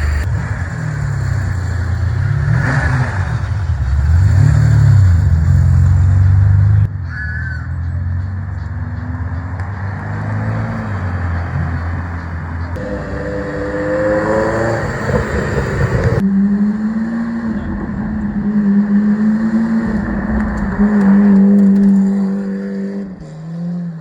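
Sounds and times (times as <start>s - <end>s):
car engine revving: 8.6s - 24.0s.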